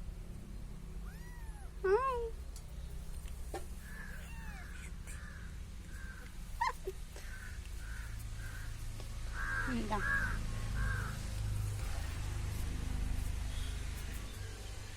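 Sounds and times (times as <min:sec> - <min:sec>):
kitten meowing: 0:01.0 - 0:02.3, 0:03.8 - 0:05.2.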